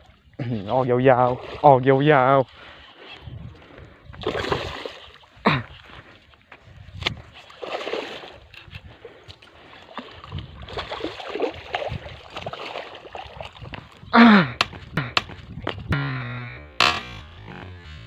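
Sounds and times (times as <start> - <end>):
people talking: 0.4 - 2.4
water splashing from hooked fish: 4.2 - 5.4, 7.0 - 16.0.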